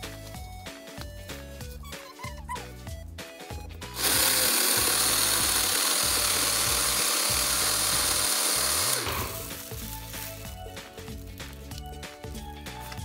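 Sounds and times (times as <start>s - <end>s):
electric blender whirring: 4.0s - 9.6s.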